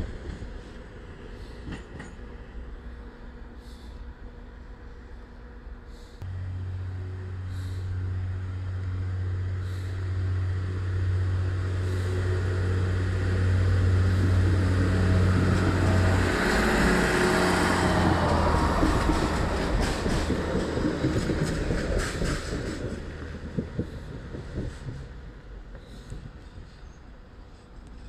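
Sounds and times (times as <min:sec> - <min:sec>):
train wheel and rail noise: 0:00.0 - 0:28.0
low hum: 0:02.2 - 0:28.0
wheels clicking over rail joints: 0:14.0 - 0:28.0.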